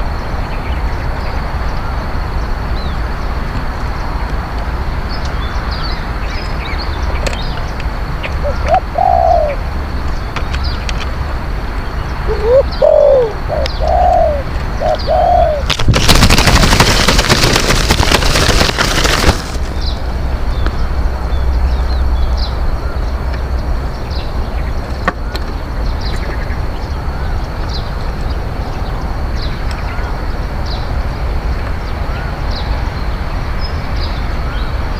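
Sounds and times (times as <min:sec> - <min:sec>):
dove cooing: 0:08.4 - 0:09.6, 0:12.3 - 0:15.7
loud rushing noise: 0:14.2 - 0:20.4.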